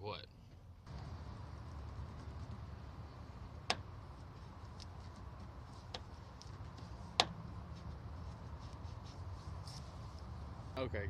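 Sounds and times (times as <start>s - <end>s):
steady low rumble: 0.7s - 11.0s
radiator cap clicking: 3.6s - 4.0s, 4.7s - 7.4s.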